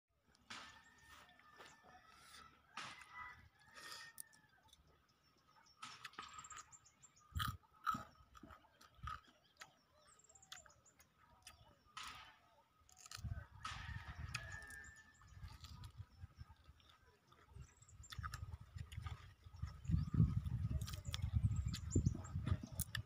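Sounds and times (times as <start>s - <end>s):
chewing watery rice: 0.8s - 12.0s, 12.7s - 13.3s, 14.1s - 23.0s.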